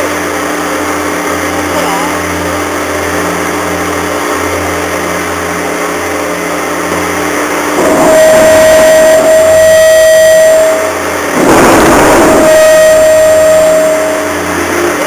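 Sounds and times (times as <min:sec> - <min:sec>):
ship engine drone: 0:00.0 - 0:15.0
ship horn blast: 0:07.7 - 0:15.0.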